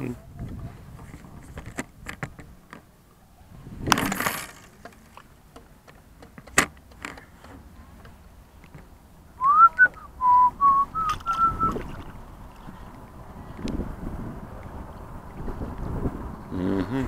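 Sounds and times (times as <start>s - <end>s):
person whistling: 9.4s - 11.9s
brief rustle: 11.0s - 13.8s.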